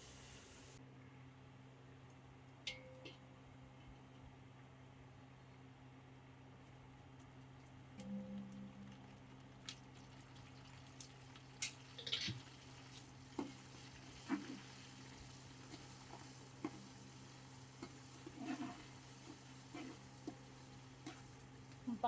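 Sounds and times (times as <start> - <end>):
low hum: 0.8 - 10.3.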